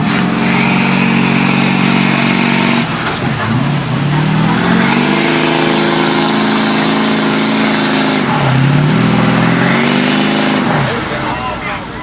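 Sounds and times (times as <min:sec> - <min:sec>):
truck engine at high revs: 0:00.0 - 0:12.0.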